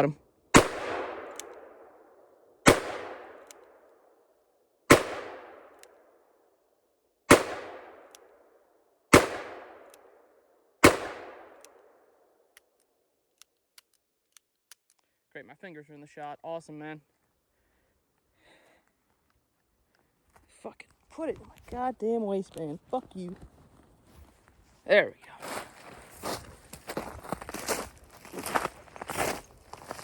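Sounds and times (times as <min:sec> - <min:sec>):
gunshots with echo: 0:00.5 - 0:01.9, 0:02.6 - 0:03.5, 0:04.9 - 0:05.8, 0:07.3 - 0:08.1, 0:09.1 - 0:09.9, 0:10.8 - 0:11.6.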